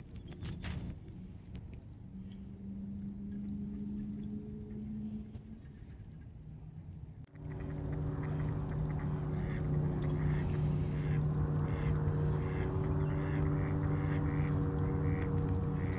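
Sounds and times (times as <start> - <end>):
steady low hum: 1.2 - 15.9
ducks quacking: 7.4 - 15.9.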